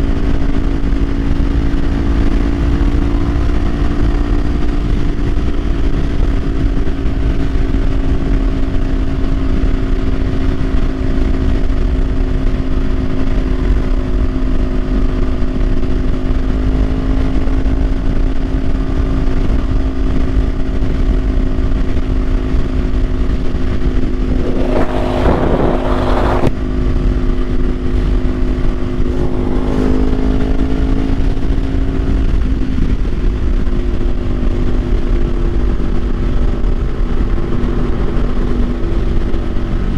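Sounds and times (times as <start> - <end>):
low wind rumble: 0.0 - 39.9
motorcycle engine cruising: 0.0 - 39.9
loud rushing noise: 22.0 - 35.0.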